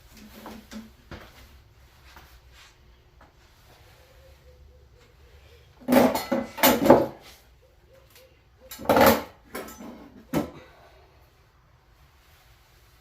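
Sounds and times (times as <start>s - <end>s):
metal parts clanking: 5.8s - 7.2s, 8.7s - 10.2s.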